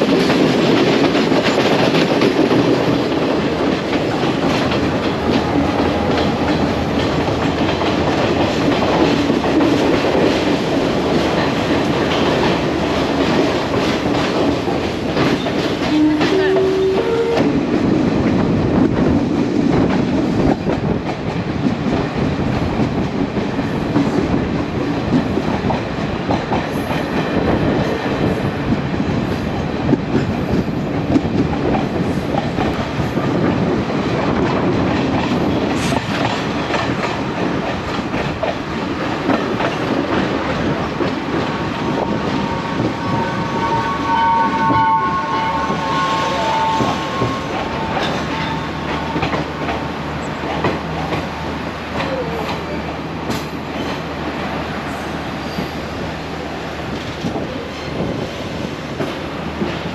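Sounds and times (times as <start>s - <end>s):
train carriages rumbling and rattling: 0.0s - 59.9s.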